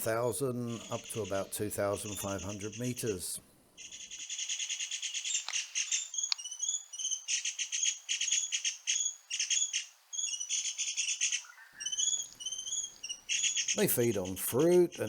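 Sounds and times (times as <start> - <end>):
birds buzzy rattling chatters: 0.0 - 15.0
short bird chirps: 3.8 - 13.8.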